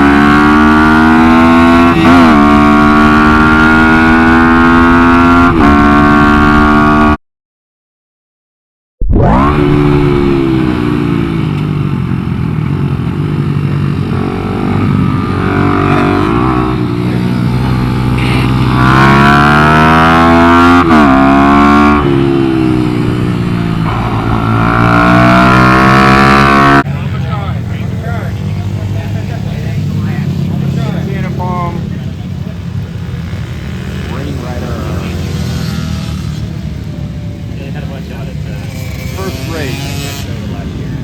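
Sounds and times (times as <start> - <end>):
minibike engine revving: 0.0 - 7.2, 9.2 - 41.0.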